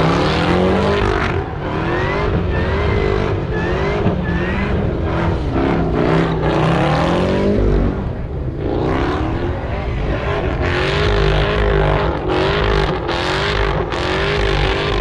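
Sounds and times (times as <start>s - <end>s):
high-pitched squeals: 0.0s - 7.8s
car engine revving: 0.0s - 15.0s.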